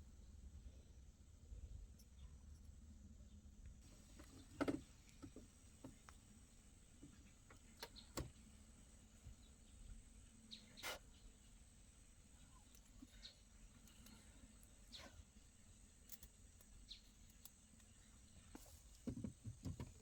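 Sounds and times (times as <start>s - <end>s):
low background noise: 0.0s - 20.0s
faint clicks and knocks: 3.9s - 6.3s, 16.0s - 20.0s.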